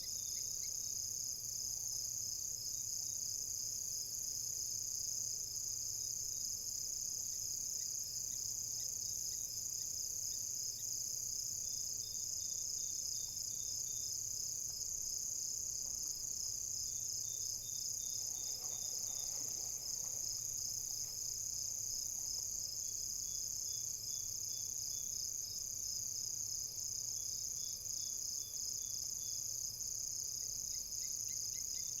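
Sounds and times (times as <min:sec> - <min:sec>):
faint insect chirps: 0:00.0 - 0:32.0
crickets trilling: 0:07.4 - 0:26.5.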